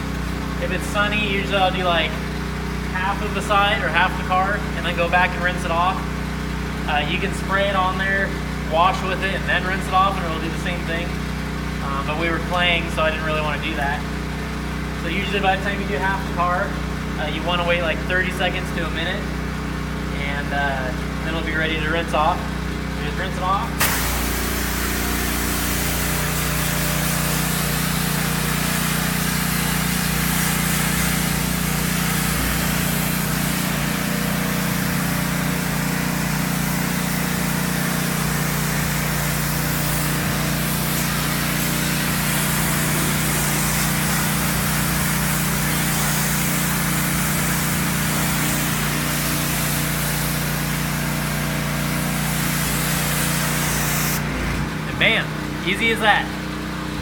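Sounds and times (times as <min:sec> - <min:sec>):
motor hum: 0:00.0 - 0:57.0
pressure washer water spray hiss: 0:23.6 - 0:54.3.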